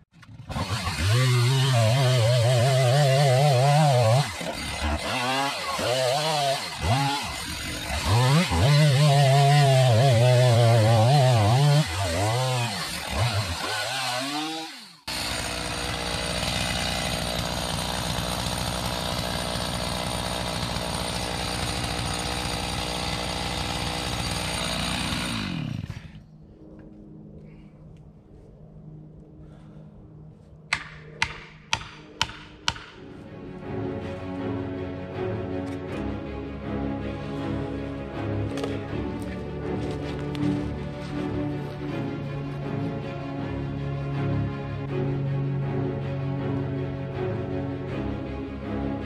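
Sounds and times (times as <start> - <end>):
chainsaw cutting wood: 0.1 - 26.2, 30.7 - 33.0.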